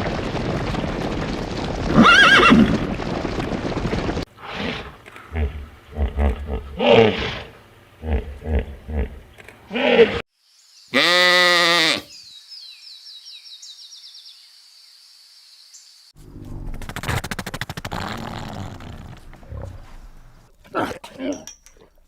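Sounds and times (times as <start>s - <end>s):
goat or sheep bleating: 11.0s - 12.1s.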